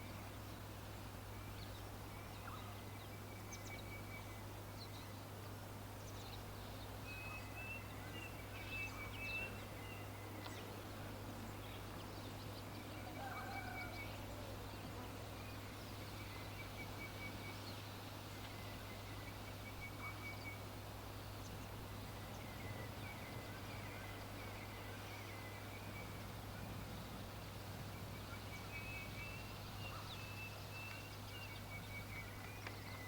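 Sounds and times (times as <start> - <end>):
birds trilling: 12.9 - 14.7
steady low hum: 13.8 - 33.0.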